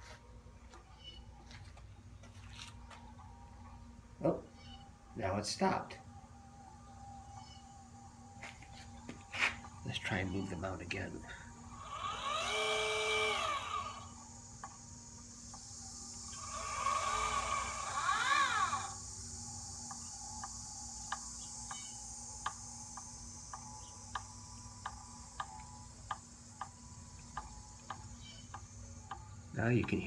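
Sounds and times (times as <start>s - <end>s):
motors whining: 0.7s - 30.0s
faint regular clicking: 19.8s - 30.0s.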